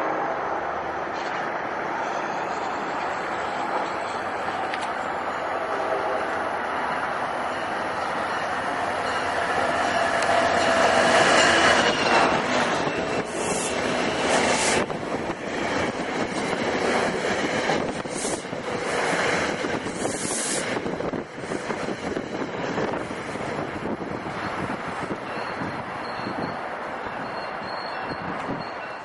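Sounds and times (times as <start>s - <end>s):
train rolling on rails: 0.0s - 29.0s
wheel squeal: 25.2s - 29.0s.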